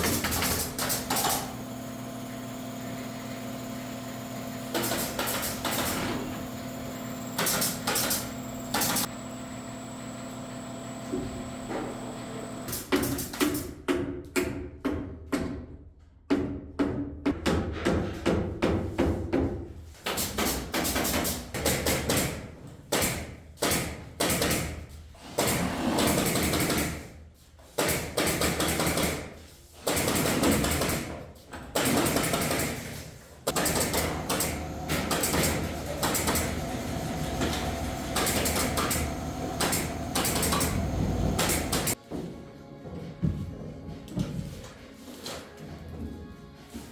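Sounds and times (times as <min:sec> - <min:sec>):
carpentry power tools running: 0:00.0 - 0:12.9, 0:33.5 - 0:42.0.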